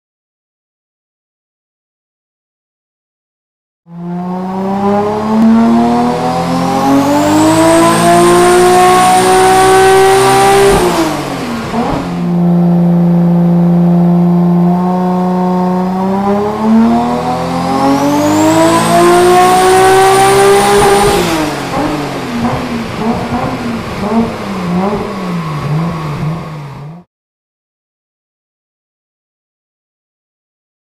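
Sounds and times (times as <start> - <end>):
car engine revving on dyno: 3.9 - 27.1.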